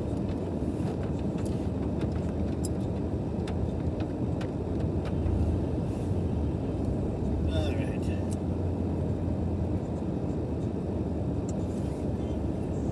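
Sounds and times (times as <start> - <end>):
car engine and tyres rumbling: 0.0 - 12.9.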